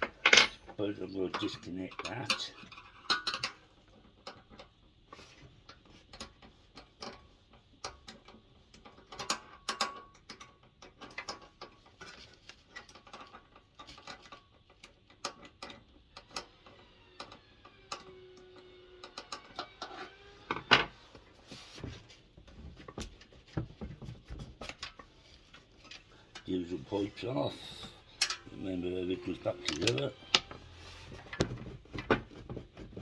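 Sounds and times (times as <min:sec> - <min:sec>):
hand tools clicking on metal: 0:25.9 - 0:30.5.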